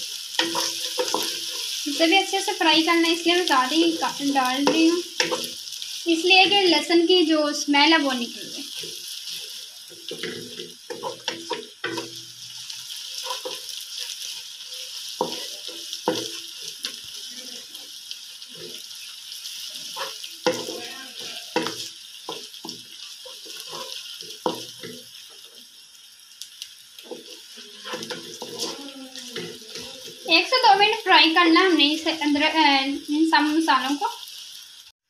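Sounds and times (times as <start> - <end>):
onions sizzling in hot oil: 0.0 - 35.0
wooden spatula scraping pan: 13.2 - 14.2, 23.2 - 25.1, 27.0 - 30.4.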